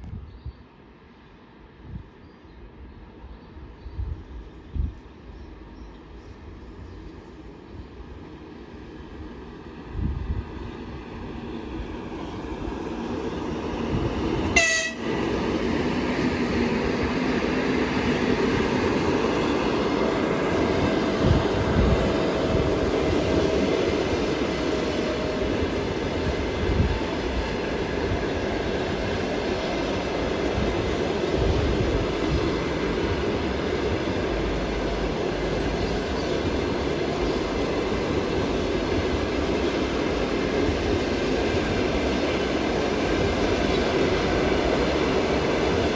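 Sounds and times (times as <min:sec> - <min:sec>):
train wheels rumbling on rails: 0:02.6 - 0:45.9
train horn toot: 0:14.6 - 0:15.1.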